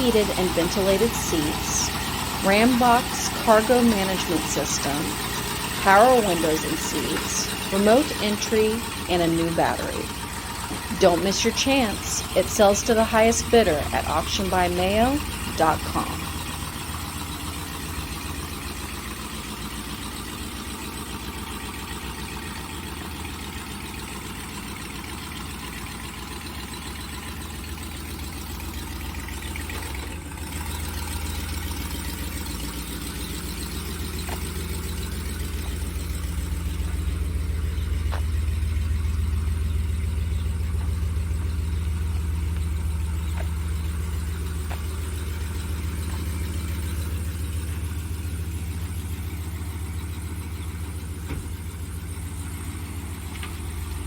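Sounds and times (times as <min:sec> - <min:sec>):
pickup engine idling: 0:00.0 - 0:54.0.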